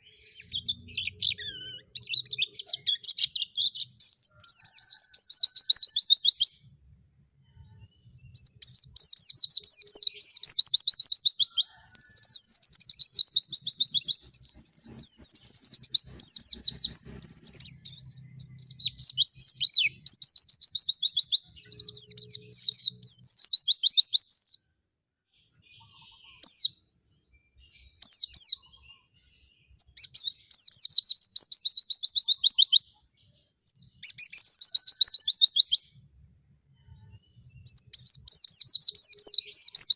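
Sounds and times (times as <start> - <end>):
bird high trilled chatter: 7.8 - 20.8.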